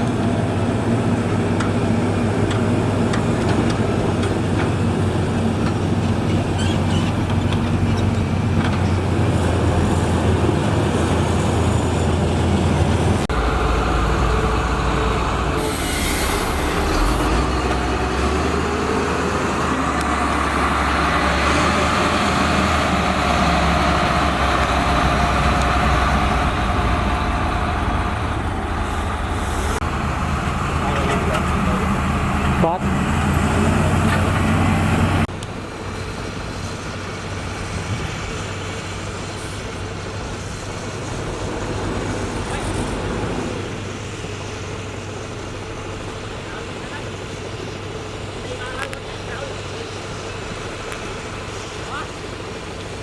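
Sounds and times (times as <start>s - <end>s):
diesel engine running: 0.0s - 53.0s
short hiss: 15.6s - 17.4s.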